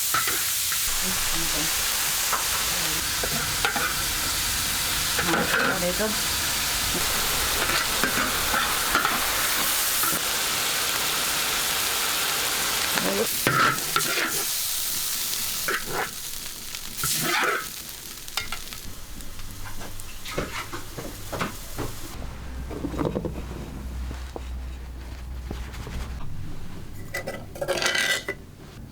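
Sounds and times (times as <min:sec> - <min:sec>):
food sizzling in a pan: 0:00.0 - 0:22.2
spatula scraping a pan: 0:13.4 - 0:14.5, 0:19.6 - 0:20.9.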